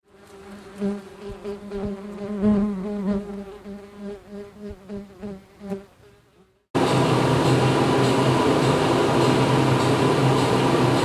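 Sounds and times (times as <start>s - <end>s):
insect buzzing: 0.0s - 6.6s.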